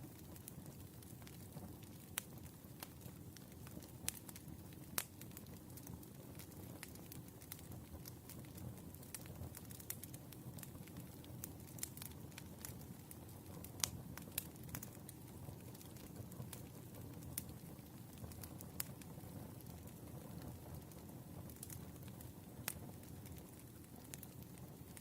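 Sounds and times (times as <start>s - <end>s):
fire popping and crackling: 0.0s - 25.0s
wood fire rumbling: 0.0s - 25.0s.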